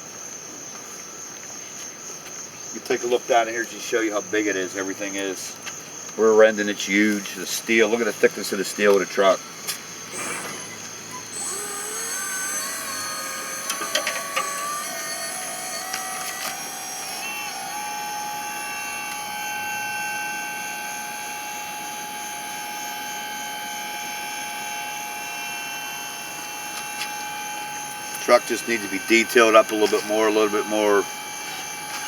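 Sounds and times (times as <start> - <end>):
electric motor whine: 10.1 - 32.0.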